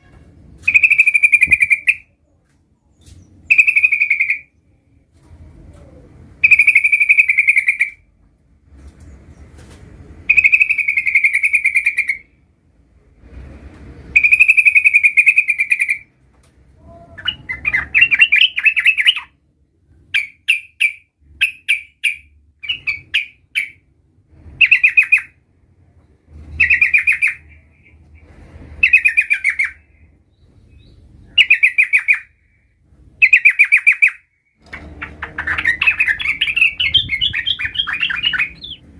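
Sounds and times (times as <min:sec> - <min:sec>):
bird singing trilled phrases: 0:00.6 - 0:02.2, 0:02.9 - 0:04.7, 0:06.4 - 0:08.0, 0:10.3 - 0:12.3, 0:14.1 - 0:16.1, 0:16.9 - 0:19.4, 0:20.1 - 0:23.8, 0:24.6 - 0:25.4, 0:26.6 - 0:28.0, 0:28.8 - 0:32.4, 0:33.2 - 0:34.3, 0:35.0 - 0:38.9.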